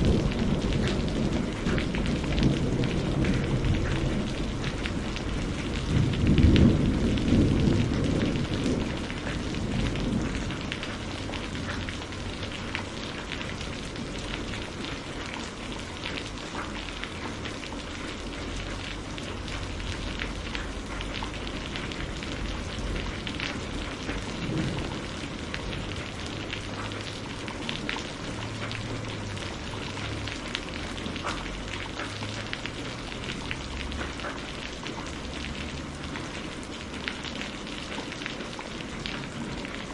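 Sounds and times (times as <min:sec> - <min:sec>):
low roll of thunder: 0:00.0 - 0:15.2, 0:18.5 - 0:31.2
raindrops pattering: 0:00.0 - 0:39.9
steady rain falling: 0:00.0 - 0:39.9.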